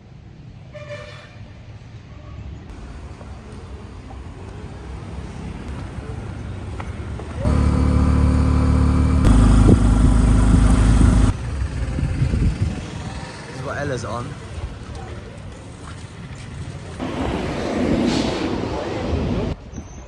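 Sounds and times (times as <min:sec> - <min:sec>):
low road rumble: 0:07.1 - 0:13.6
motorbike engine running: 0:07.4 - 0:13.3.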